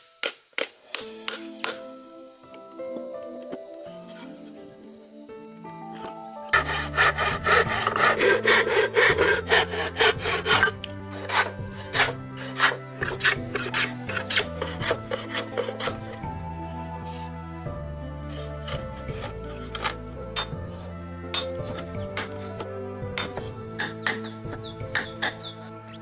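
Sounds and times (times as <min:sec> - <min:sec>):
background music: 0:00.0 - 0:26.0
hand tool rubbing wood: 0:06.6 - 0:17.4, 0:18.2 - 0:26.0.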